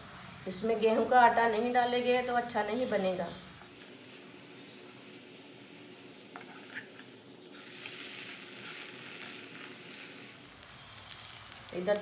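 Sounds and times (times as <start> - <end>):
flatbread sizzling in oil: 0.0 - 12.0.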